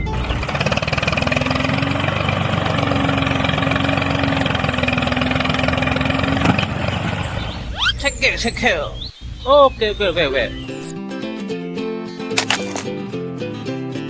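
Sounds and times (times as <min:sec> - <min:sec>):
motor running with fast pulse: 0:00.0 - 0:07.4.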